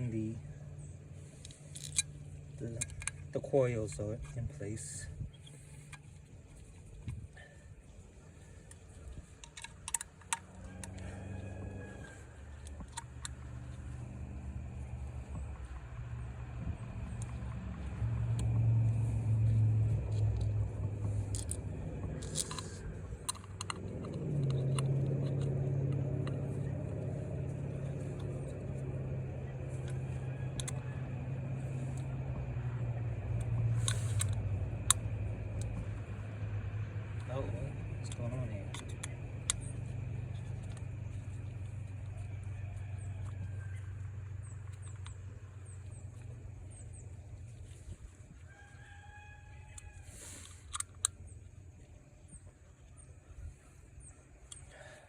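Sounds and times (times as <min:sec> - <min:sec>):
low steady rumble: 0:00.0 - 0:55.0
steady low hum: 0:00.0 - 0:55.0
clicks of small parts handled: 0:01.4 - 0:02.1, 0:09.4 - 0:11.0, 0:21.2 - 0:26.5
sharp clicks: 0:14.8 - 0:30.9, 0:32.9 - 0:36.2, 0:37.0 - 0:42.2, 0:49.7 - 0:51.6.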